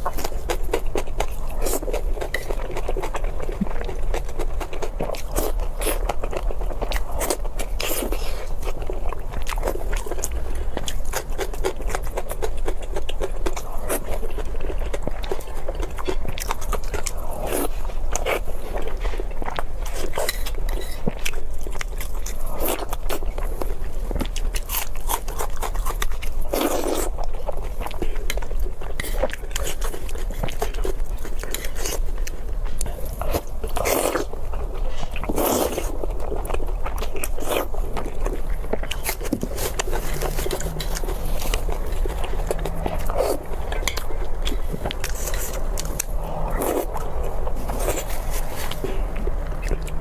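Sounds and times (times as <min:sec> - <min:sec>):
crunchy chewing of crispy food: 0:00.0 - 0:50.0
low hum: 0:37.8 - 0:50.0.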